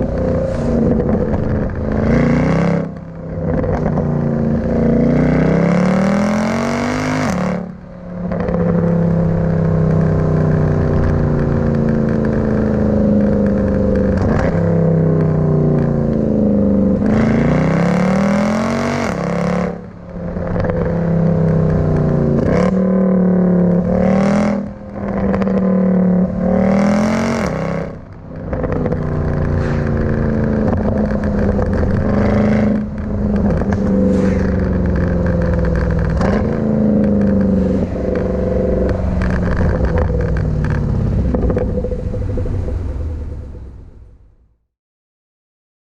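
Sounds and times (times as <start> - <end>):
car engine revving: 0.0 - 44.4
exhaust crackle: 0.0 - 44.5.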